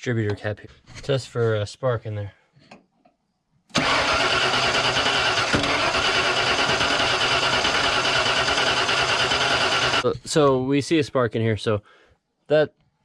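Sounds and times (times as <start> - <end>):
starter motor cranking engine: 3.7 - 10.1.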